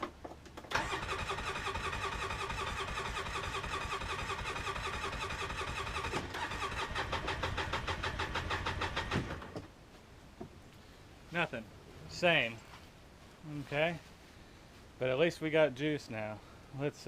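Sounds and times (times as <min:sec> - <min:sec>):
engine starter cranking: 0:00.7 - 0:09.6.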